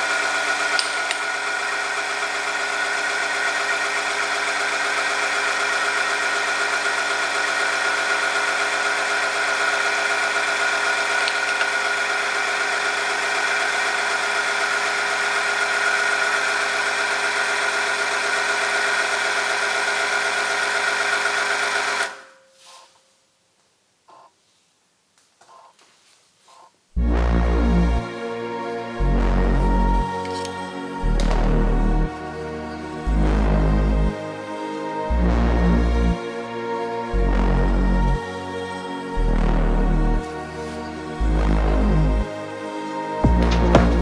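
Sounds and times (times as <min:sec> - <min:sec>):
electric motor whine: 0:27.7 - 0:44.0.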